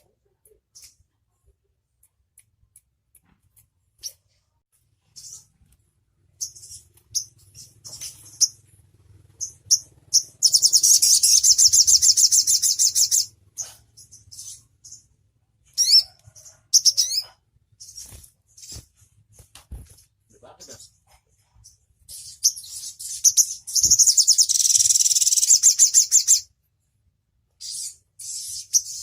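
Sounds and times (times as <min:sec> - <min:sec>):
songbird chips and trill: 0:22.1 - 0:26.4.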